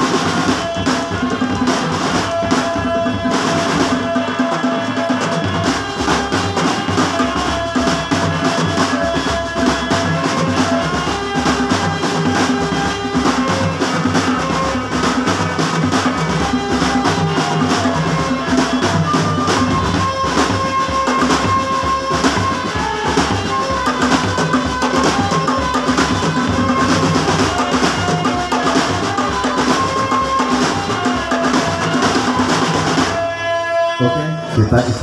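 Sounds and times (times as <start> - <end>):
snare and bass drums: 0.0 - 33.2
marching band melody: 0.0 - 35.0.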